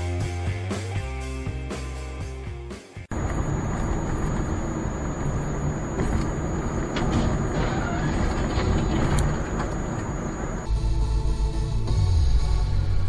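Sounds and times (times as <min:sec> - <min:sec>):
faint high whine: 0:03.1 - 0:11.5
vehicle road and engine noise: 0:03.1 - 0:11.5.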